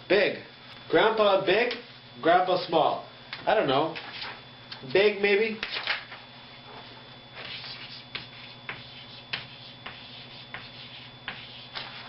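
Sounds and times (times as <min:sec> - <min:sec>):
marker writing on whiteboard: 0:07.4 - 0:12.0.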